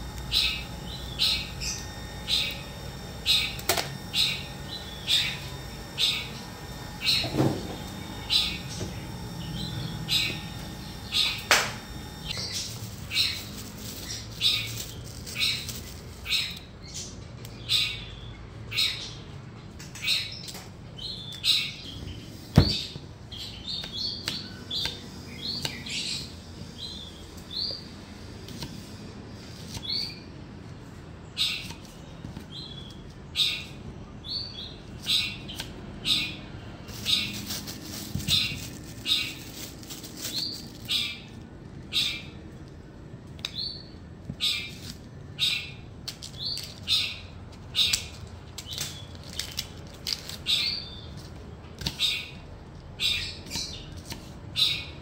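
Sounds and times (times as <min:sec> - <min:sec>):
bird chirping: 0:00.0 - 0:19.3, 0:31.2 - 0:39.6.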